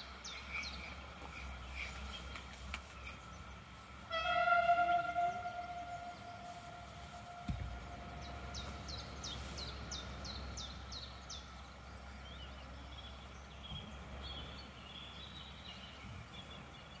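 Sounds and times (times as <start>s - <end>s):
low background rumble: 0.0s - 17.0s
songbird singing: 0.0s - 17.0s.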